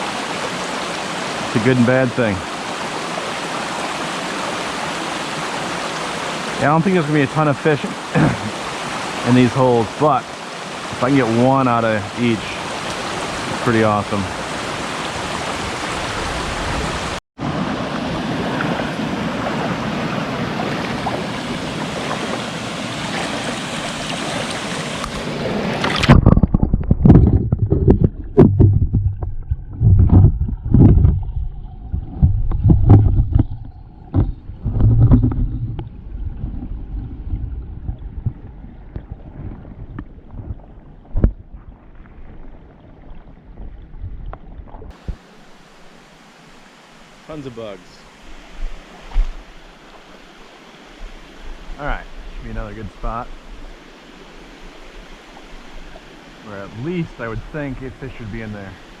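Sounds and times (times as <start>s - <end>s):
stream rushing down cascade: 0.0s - 26.2s, 44.9s - 59.0s
low thumps and rumbles: 26.0s - 45.2s.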